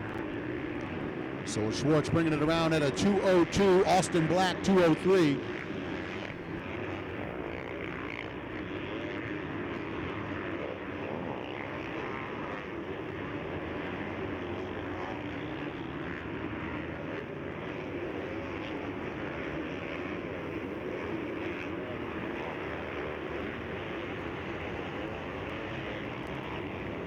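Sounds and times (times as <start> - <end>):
motocross engines revving: 1.5 - 5.8.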